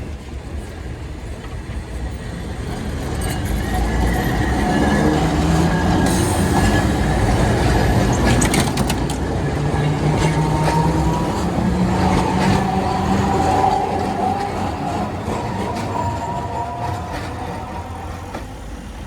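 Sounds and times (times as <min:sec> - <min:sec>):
tram running on rails: 0:00.0 - 0:19.0
tram wheel clicks: 0:07.1 - 0:18.6.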